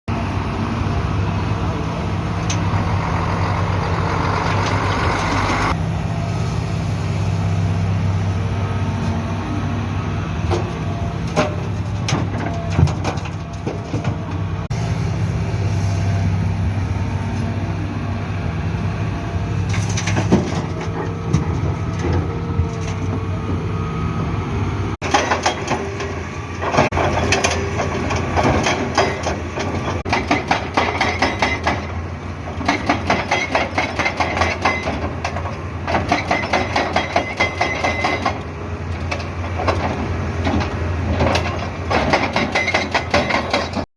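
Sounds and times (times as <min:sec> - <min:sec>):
diesel engine running: 0:00.1 - 0:43.9
clanks and knocks of digging: 0:10.4 - 0:14.5, 0:19.6 - 0:23.6, 0:25.0 - 0:43.9.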